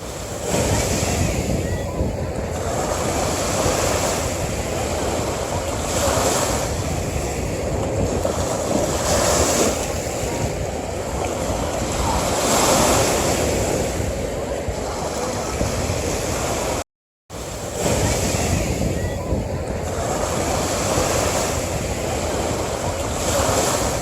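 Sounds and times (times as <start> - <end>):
ocean waves breaking on beach: 0.0 - 24.0.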